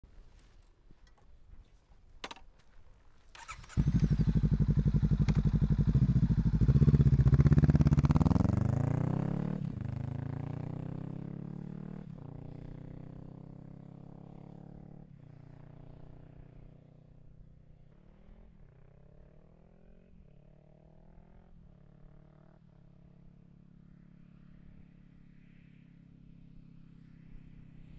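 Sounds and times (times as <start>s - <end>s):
motorcycle engine passing by: 3.4s - 25.7s.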